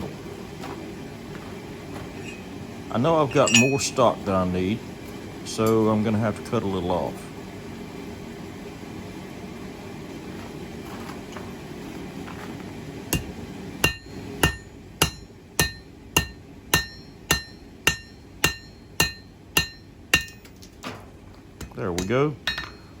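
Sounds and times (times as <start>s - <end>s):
hammer striking steel: 3.4s - 3.8s, 13.1s - 20.5s, 21.6s - 22.9s.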